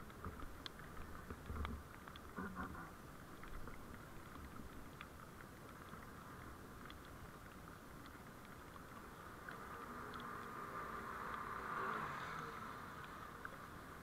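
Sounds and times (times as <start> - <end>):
light ticks: 0.0 - 14.0
vehicle road noise: 7.7 - 14.0.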